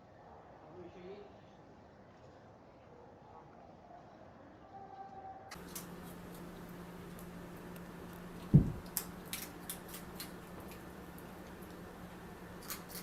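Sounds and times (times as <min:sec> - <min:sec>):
steady low hum: 0:05.5 - 0:13.0
heavy thump: 0:08.5 - 0:08.8.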